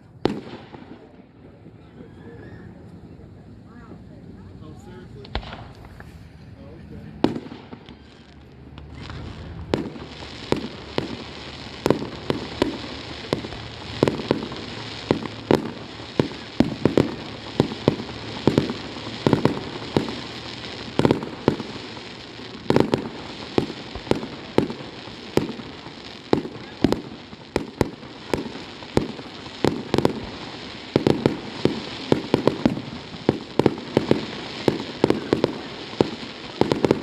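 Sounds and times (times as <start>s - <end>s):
fireworks crackling: 0.0s - 37.0s
firework shell bursts: 5.2s - 6.5s.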